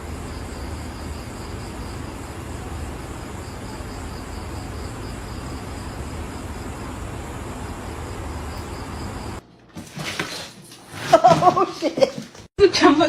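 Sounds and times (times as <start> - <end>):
insects chirping: 0.0 - 9.4
outdoor background hiss: 0.0 - 9.4.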